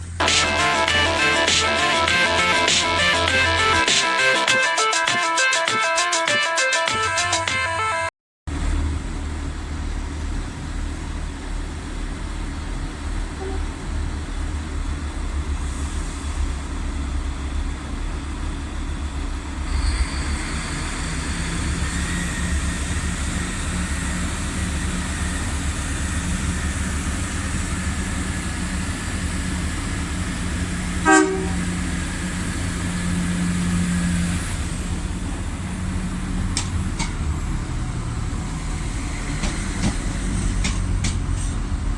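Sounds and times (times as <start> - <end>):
train diesel engines rumbling: 0.0 - 7.8, 8.5 - 41.9
train horn toot: 0.2 - 8.1, 13.4 - 13.9, 31.0 - 32.0.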